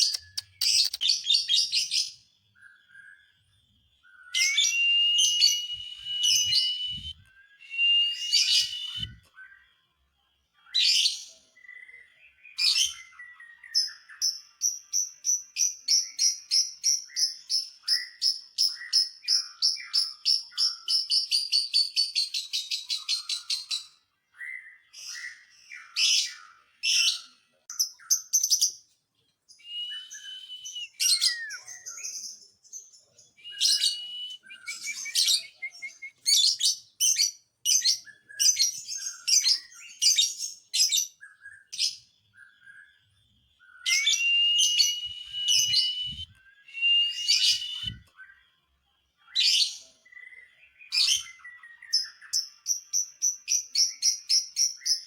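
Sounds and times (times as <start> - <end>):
bird chattering and chirping: 0.0 - 1.2
bird whistling: 4.1 - 9.2, 29.6 - 31.9, 33.4 - 36.5, 43.6 - 48.1.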